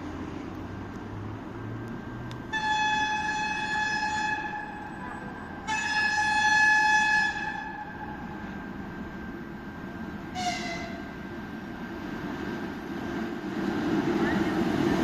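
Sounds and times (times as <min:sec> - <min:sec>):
passing train rumble: 0:00.0 - 0:15.0
locomotive horn blasts: 0:02.5 - 0:08.0, 0:10.3 - 0:11.2.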